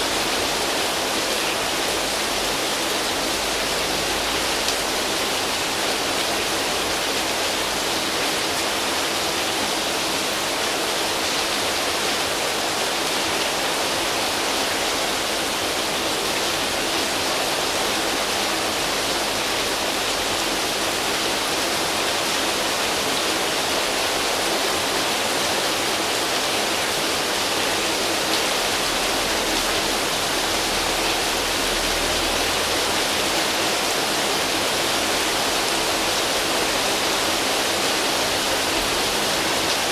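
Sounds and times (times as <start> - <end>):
heavy rain on leaves and tin roof: 0.0 - 39.9.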